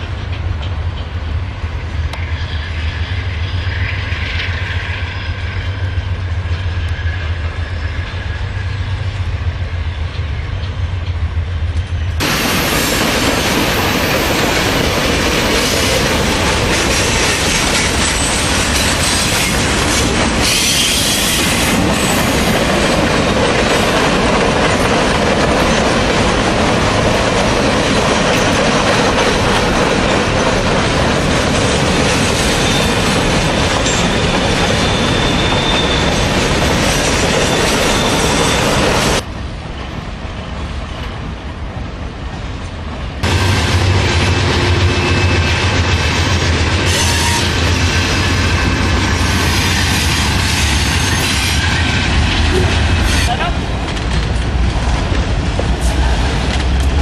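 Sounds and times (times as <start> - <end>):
dull train rumble: 0.0 - 57.0
train wheels clattering: 9.9 - 39.3.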